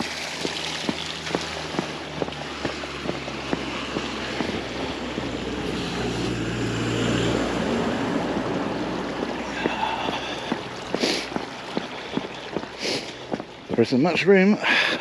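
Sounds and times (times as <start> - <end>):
footsteps walking: 0.0 - 6.2, 9.2 - 14.1
vehicle driving past: 0.2 - 10.9.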